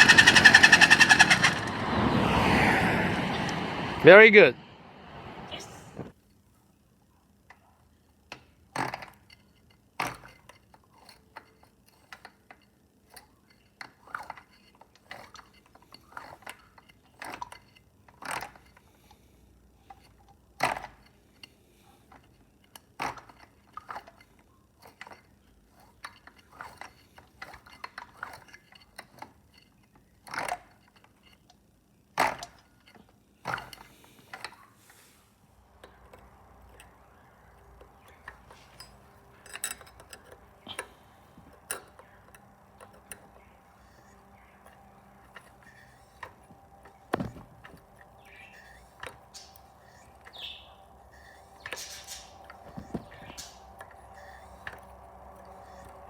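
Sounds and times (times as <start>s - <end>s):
metal tools clinking: 35.8s - 56.0s.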